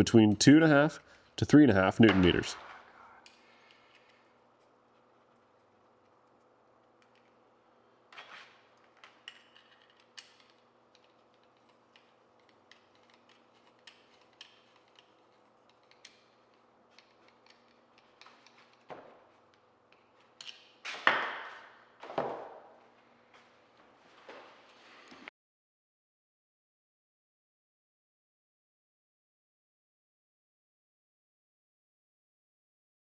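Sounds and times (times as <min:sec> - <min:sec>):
metal clicks of hand tools: 0:09.0 - 0:18.9.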